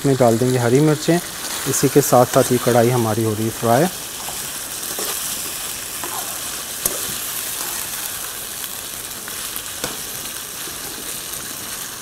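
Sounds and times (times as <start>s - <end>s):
chicken sizzling in frying pan: 0.0s - 12.0s
spatula stirring: 3.6s - 11.8s.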